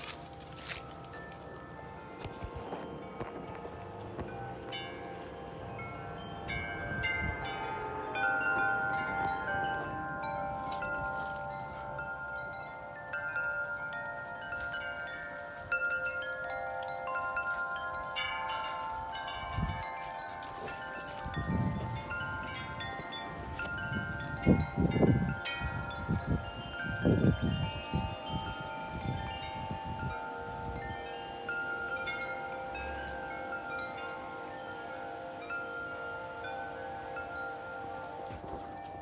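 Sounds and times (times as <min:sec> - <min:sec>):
wind chimes ringing: 0:00.0 - 0:39.0
wind buffeting microphone: 0:14.4 - 0:31.0.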